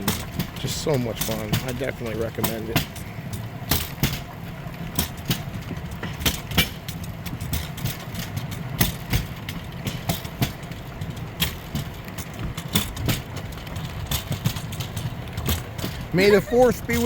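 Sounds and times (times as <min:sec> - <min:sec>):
wheels clicking on track: 0:00.0 - 0:17.0
wheels rumbling on rails: 0:00.0 - 0:17.0.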